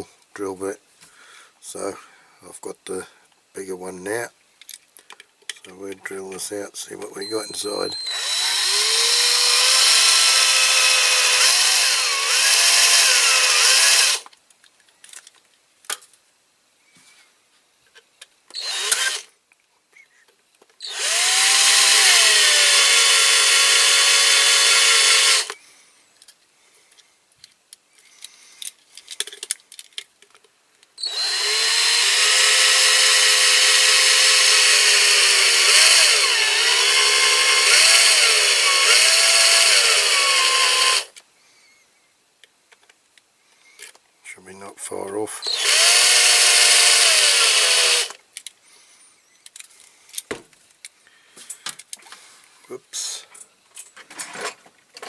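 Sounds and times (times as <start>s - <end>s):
electric drill drilling metal: 7.2s - 14.3s, 18.5s - 19.3s, 20.8s - 25.6s, 31.0s - 41.2s, 45.4s - 48.2s.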